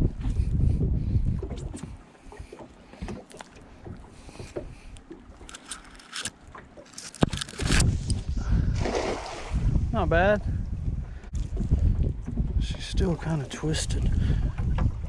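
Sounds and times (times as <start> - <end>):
net clicking and rattling: 5.5 - 6.3, 6.9 - 7.8.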